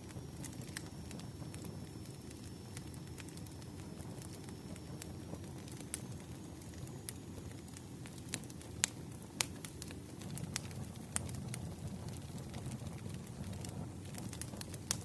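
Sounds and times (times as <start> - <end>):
low rumble of burning logs: 0.0 - 15.0
wood fire crackling: 0.0 - 15.0.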